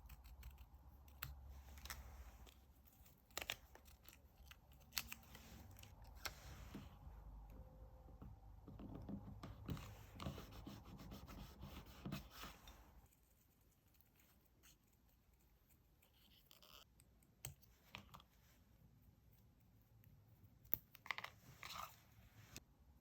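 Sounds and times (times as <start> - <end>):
rubbing and scratching on paper: 0.0 - 6.9, 9.6 - 16.9.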